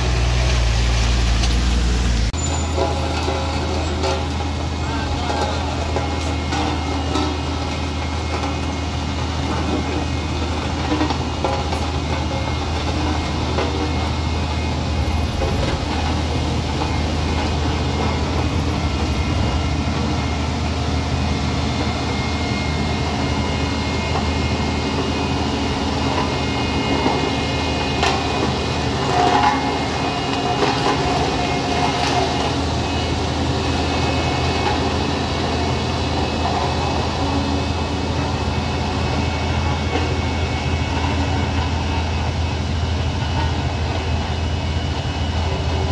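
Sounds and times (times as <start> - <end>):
heavy vehicle engine humming: 0.0 - 45.9.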